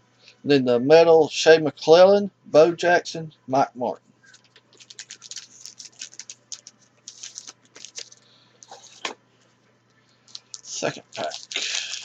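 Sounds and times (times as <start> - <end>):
trading cards flicking and rustling: 4.2 - 9.6, 10.2 - 12.0.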